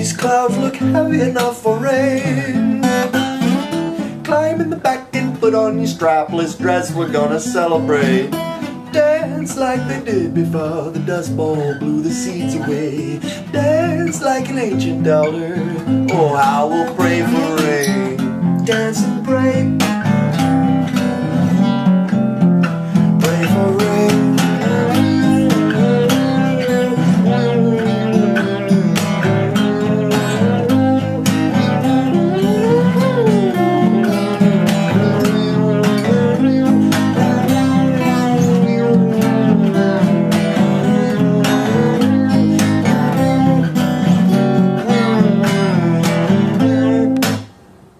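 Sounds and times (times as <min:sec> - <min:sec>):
acoustic guitar strumming: 0:00.0 - 0:47.9
lead melody line: 0:22.8 - 0:47.9.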